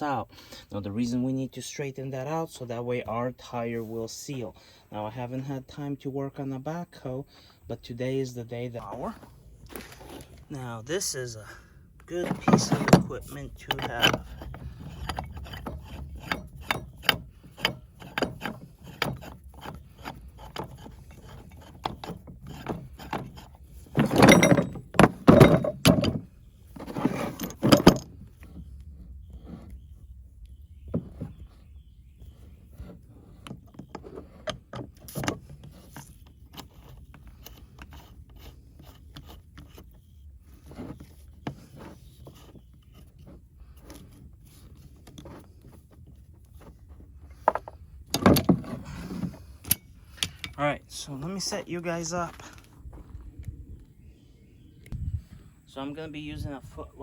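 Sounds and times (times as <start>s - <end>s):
tools clattering and knocking: 12.0s - 28.6s, 33.4s - 38.5s, 40.6s - 50.6s.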